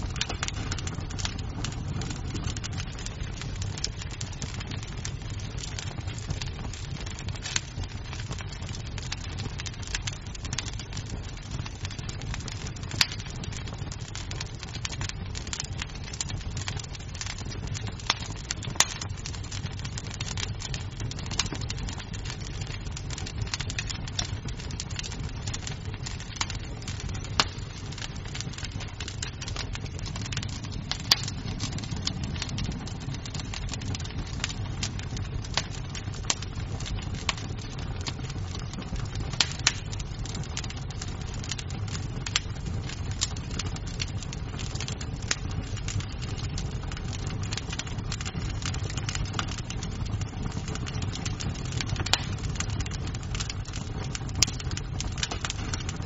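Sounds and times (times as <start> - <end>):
burning wood popping and snapping: 0.0 - 56.0
wood fire crackling: 0.0 - 56.0.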